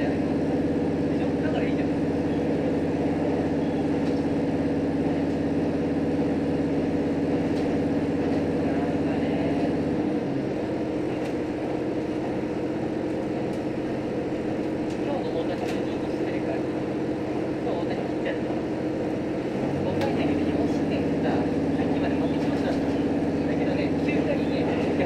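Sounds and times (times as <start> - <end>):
railcar engine drone: 0.0 - 25.0.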